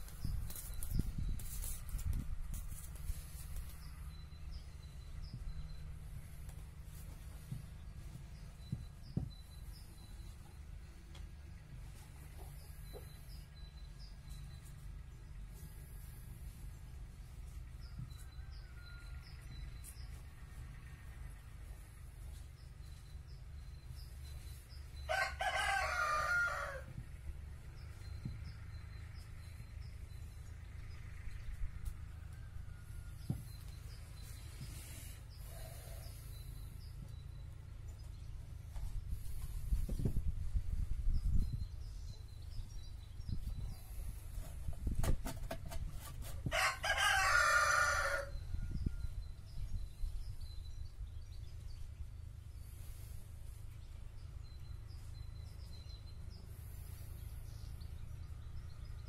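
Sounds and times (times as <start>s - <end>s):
steady low hum: 0.0s - 46.8s, 48.3s - 59.0s
rooster crowing: 25.1s - 27.0s, 46.5s - 49.1s.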